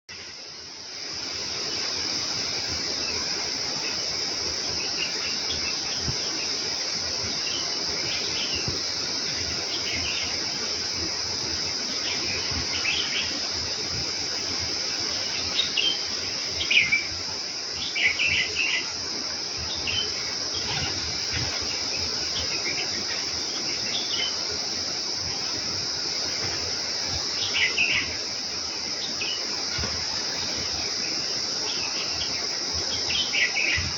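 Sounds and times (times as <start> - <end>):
high-pitched insect drone: 0.1 - 33.9
sparrows chirping: 14.8 - 33.9.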